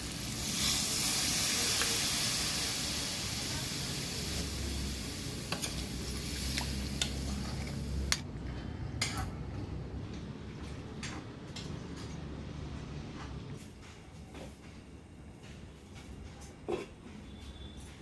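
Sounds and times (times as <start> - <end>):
food sizzling in a pot: 0.0 - 8.1.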